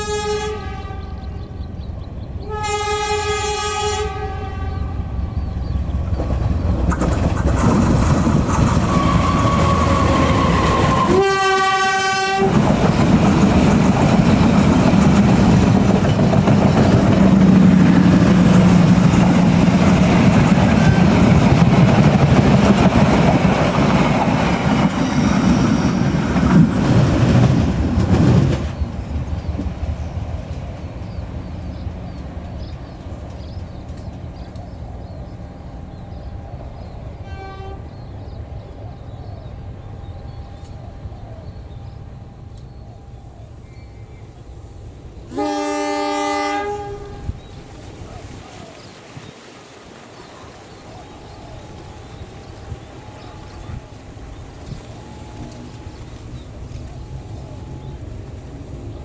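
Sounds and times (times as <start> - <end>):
locomotive horn blasts: 0.0 - 1.4, 2.4 - 5.1, 8.9 - 12.6, 37.2 - 37.9, 45.3 - 47.4
train rumbling past: 0.0 - 59.0
wheels clacking over rail joints: 5.6 - 31.8.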